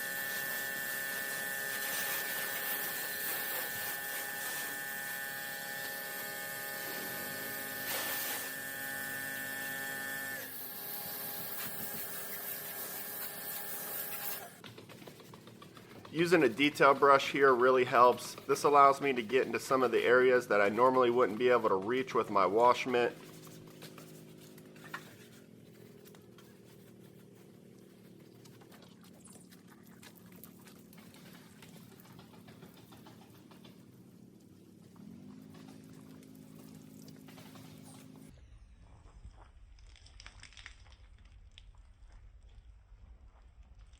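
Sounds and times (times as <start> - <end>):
brush scrubbing a wheel: 0.0 - 38.3
electrical hum: 0.0 - 38.4.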